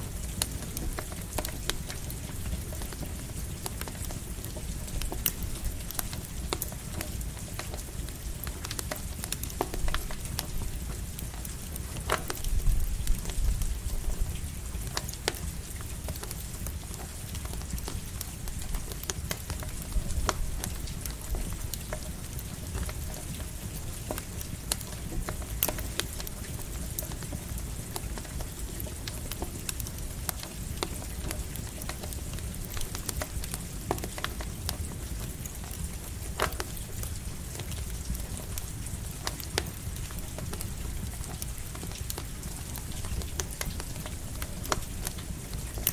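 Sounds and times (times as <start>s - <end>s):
campfire crackling and popping: 0.0s - 45.9s
light rain patter: 0.0s - 45.9s.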